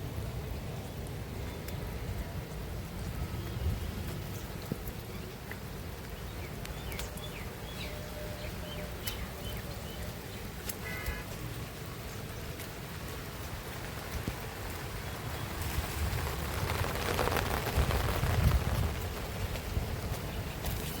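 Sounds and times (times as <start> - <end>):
steady rain falling: 0.0 - 21.0
sharp raindrop ticks: 1.0 - 7.8, 9.9 - 21.0
low rumble: 13.7 - 20.6.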